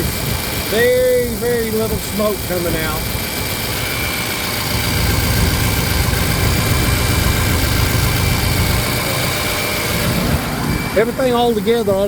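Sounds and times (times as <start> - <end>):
diesel engine idling: 0.0 - 12.0
faint steady whine: 2.7 - 12.0.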